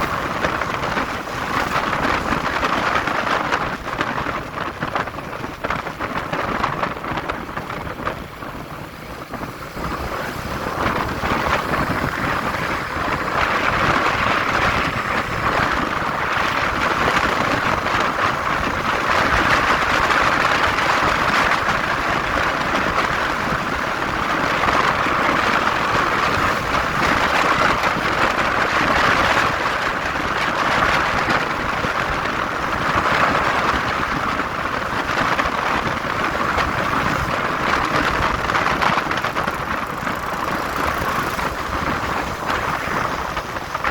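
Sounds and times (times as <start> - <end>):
wind rushing over microphone: 0.0 - 43.9
motorcycle engine: 36.1 - 43.9.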